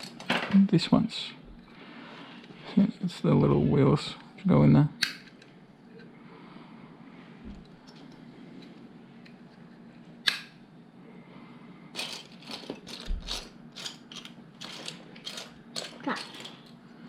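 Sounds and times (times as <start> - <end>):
plastic bricks clicking and rattling: 12.0 - 16.8.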